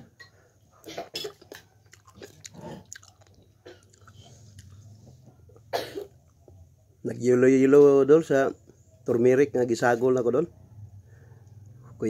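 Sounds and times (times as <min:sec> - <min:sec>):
man chewing soft food: 0:01.3 - 0:06.8.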